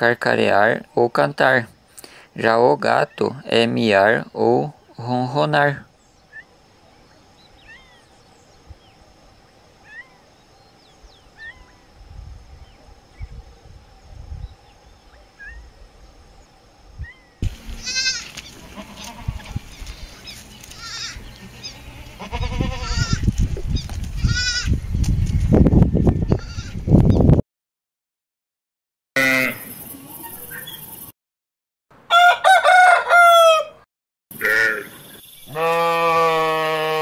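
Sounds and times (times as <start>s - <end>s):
young goat bleating: 17.4s - 24.8s, 26.3s - 26.8s, 34.4s - 34.9s, 35.5s - 37.0s.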